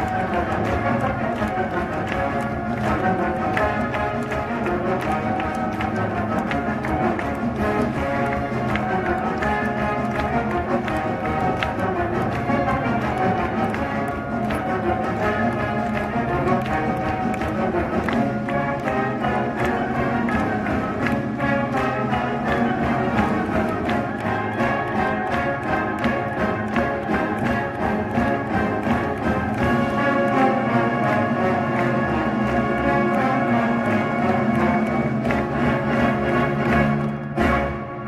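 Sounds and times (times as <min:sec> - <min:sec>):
orchestral music with strings and brass: 0:00.0 - 0:38.0.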